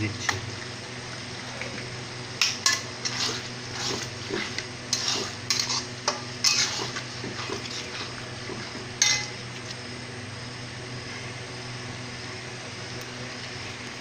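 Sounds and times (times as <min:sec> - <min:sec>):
onions frying: 0:00.0 - 0:09.9
steady low hum: 0:00.0 - 0:14.0
metal spatula scraping a pan: 0:02.7 - 0:09.3.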